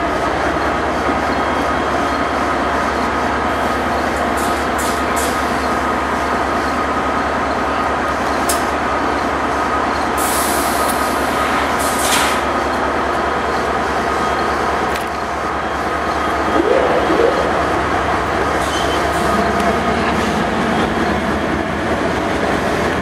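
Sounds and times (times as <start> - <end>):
train wheels on rail: 0.0 - 16.0.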